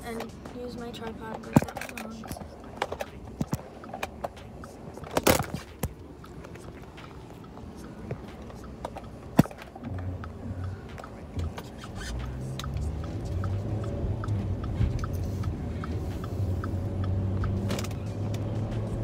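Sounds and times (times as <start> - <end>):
car engine humming: 0.0 - 19.0
light regular ticking: 0.0 - 19.0.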